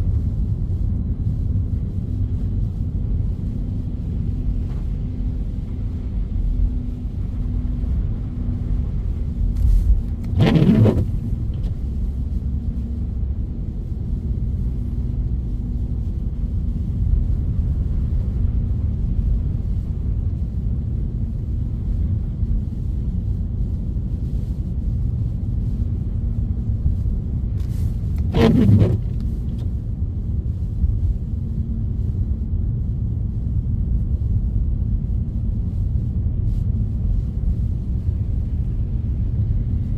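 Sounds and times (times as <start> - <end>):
car road rumble: 0.0 - 39.9.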